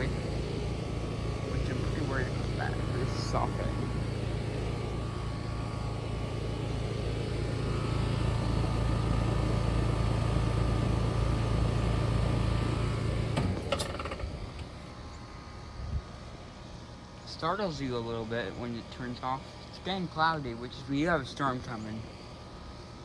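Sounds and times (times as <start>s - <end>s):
air conditioner unit humming: 0.0s - 23.0s
air conditioner shutoff clicks: 10.6s - 15.0s.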